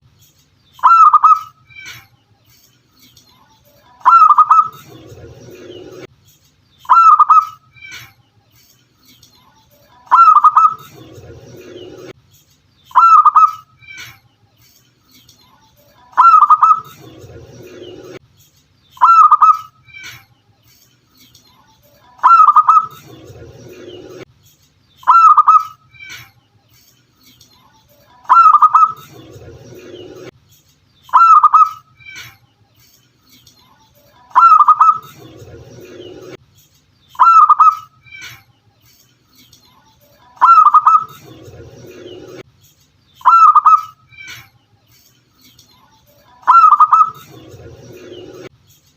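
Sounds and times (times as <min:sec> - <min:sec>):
dove cooing loudly: 0:04.0 - 0:04.8, 0:10.1 - 0:10.9, 0:16.2 - 0:16.9, 0:22.2 - 0:23.0, 0:28.3 - 0:29.0, 0:31.1 - 0:31.8, 0:34.3 - 0:35.1, 0:40.4 - 0:41.2, 0:43.2 - 0:43.9, 0:46.4 - 0:47.2.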